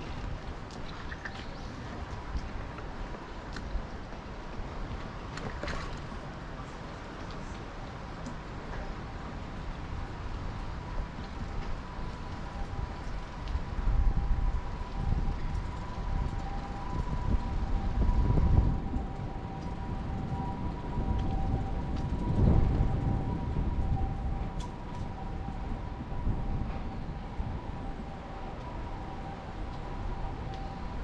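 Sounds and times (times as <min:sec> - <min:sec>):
low rumble of traffic: 0:00.0 - 0:31.0
two-tone ambulance siren: 0:08.8 - 0:31.0.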